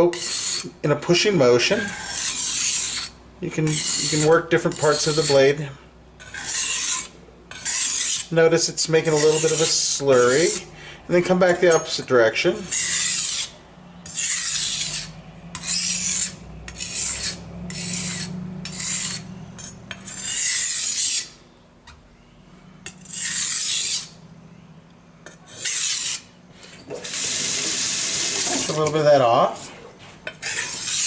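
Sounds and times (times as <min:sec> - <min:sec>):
knife scraping on whetstone: 0:00.1 - 0:00.7, 0:01.8 - 0:05.5, 0:06.2 - 0:08.3, 0:09.0 - 0:10.7, 0:12.6 - 0:21.4, 0:22.8 - 0:24.2, 0:25.2 - 0:31.0.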